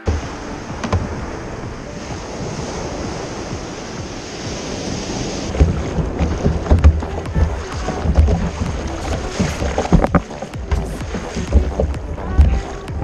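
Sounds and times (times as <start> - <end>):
sea water: 0.0 - 13.0
wind gusts buffeting microphone: 0.0 - 13.0
wind rushing over microphone: 0.0 - 13.0.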